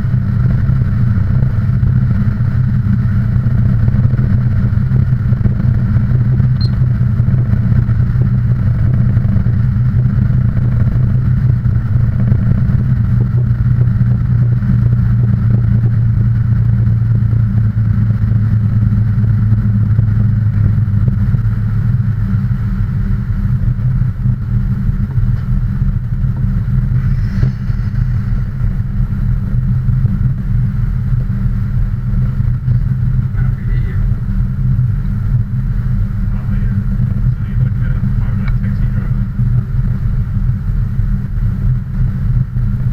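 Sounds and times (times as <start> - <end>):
low engine drone: 0.0 - 42.9.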